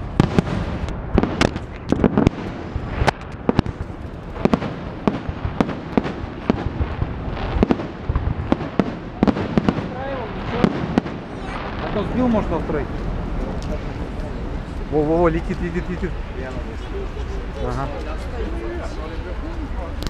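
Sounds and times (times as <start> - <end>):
fireworks bangs and cracks: 0.0 - 16.7
low rumble of bursts: 0.0 - 20.0.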